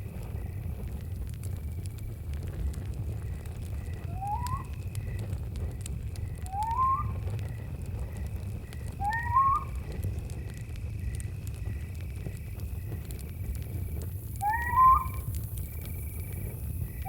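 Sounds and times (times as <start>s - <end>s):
campfire crackling and popping: 0.0s - 17.0s
crickets chirring: 0.1s - 17.0s
rising whistled bird call: 4.1s - 4.7s, 6.4s - 7.2s, 9.0s - 9.8s, 14.4s - 15.3s.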